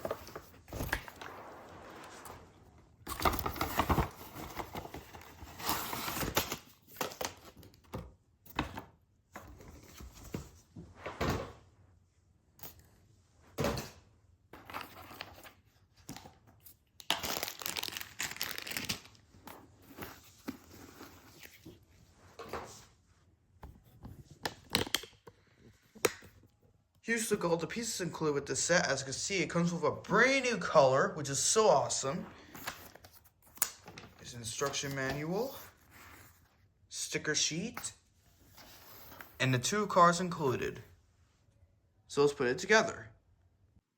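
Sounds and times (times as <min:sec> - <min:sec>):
packaging tearing and crinkling: 0:17.0 - 0:19.2.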